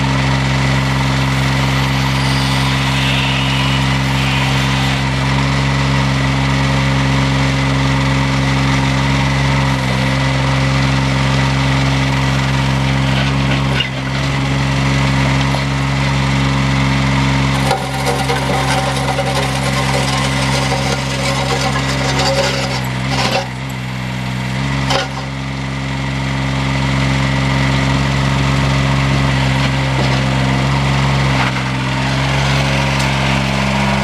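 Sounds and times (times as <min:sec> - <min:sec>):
steady whine: 0:00.0 - 0:06.1
backhoe engine running: 0:00.0 - 0:34.0
scraping grating sound: 0:00.6 - 0:05.5, 0:17.5 - 0:24.0, 0:24.8 - 0:25.4.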